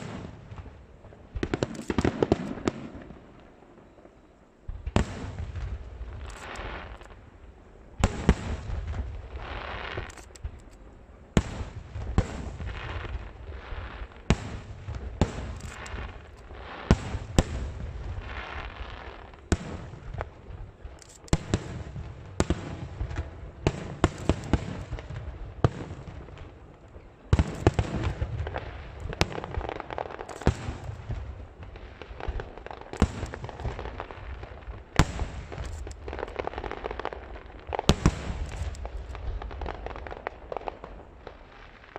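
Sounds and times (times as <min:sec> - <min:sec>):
fireworks bursting bangs: 0:00.0 - 0:07.4, 0:08.0 - 0:10.6, 0:11.3 - 0:41.9
fireworks crackle: 0:00.0 - 0:41.9.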